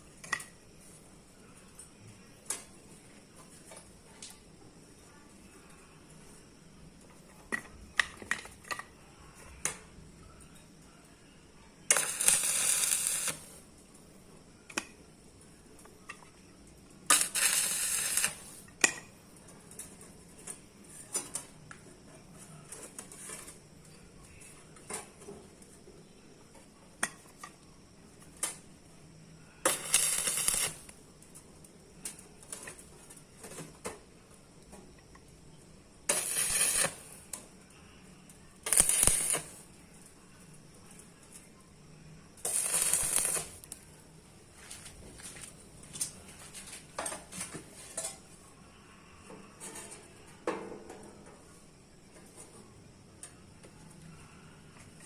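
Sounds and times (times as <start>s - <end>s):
hissing bursts: 11.9s - 13.6s, 17.1s - 18.6s, 29.7s - 30.9s, 36.1s - 37.2s, 38.7s - 39.6s, 42.4s - 43.7s.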